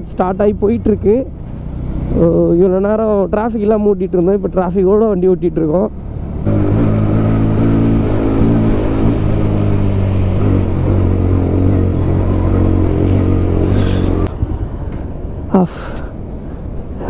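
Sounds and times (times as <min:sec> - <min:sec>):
motorcycle engine running: 0:06.2 - 0:14.3.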